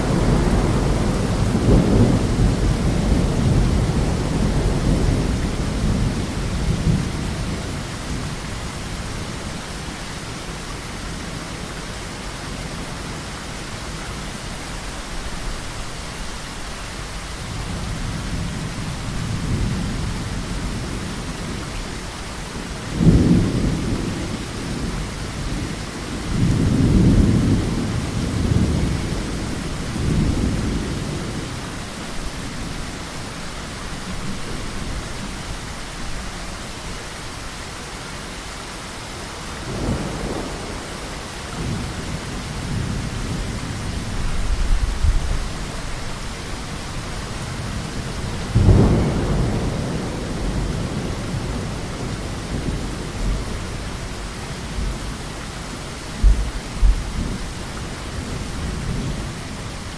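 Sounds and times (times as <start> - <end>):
thunder rumbling: 0.0 - 9.9, 17.5 - 32.8, 39.6 - 59.9
heavy rain falling: 0.0 - 59.9.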